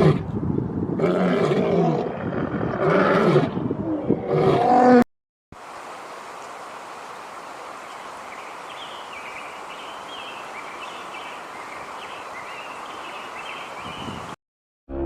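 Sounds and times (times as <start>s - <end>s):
outdoor background noise: 5.6s - 14.3s.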